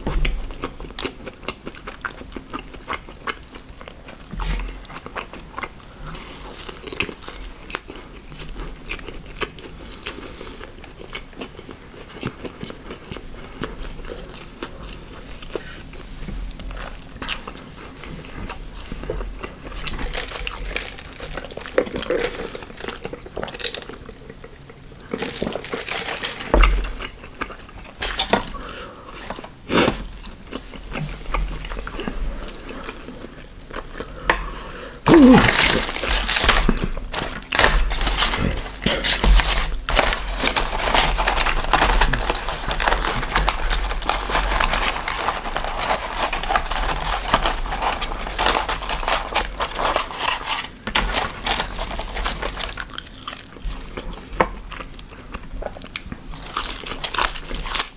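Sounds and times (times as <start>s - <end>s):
biting crunching and chewing: 17.2s - 57.9s
food containers clattering: 18.2s - 24.0s, 25.0s - 30.4s, 35.1s - 53.2s.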